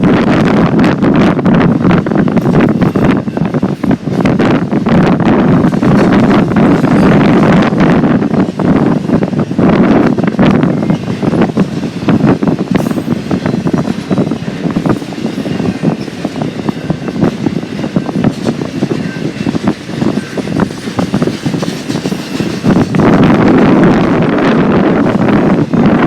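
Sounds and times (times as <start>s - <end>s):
train wheels clattering on rails: 0.0s - 26.0s
wind buffeting microphone: 0.0s - 26.0s.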